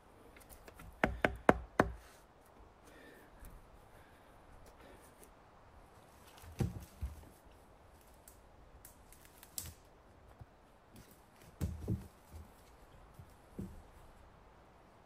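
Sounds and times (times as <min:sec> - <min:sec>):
irregular knocks and thumps: 0:00.7 - 0:02.0.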